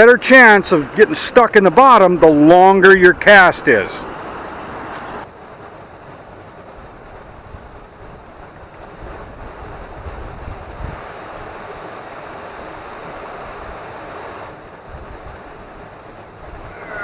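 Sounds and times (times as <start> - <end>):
fast river current rushing: 0.0 - 17.0
wind buffeting microphone: 6.0 - 17.0.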